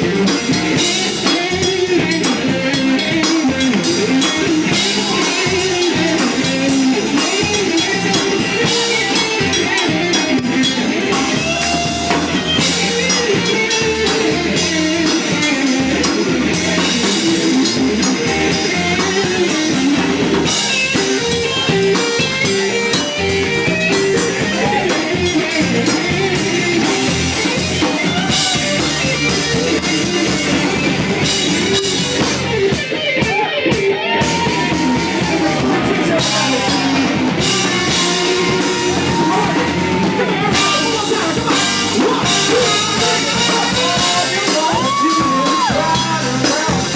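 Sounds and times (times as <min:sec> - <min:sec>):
blues guitar: 0:00.0 - 0:46.9
drum kit beat: 0:00.0 - 0:46.9.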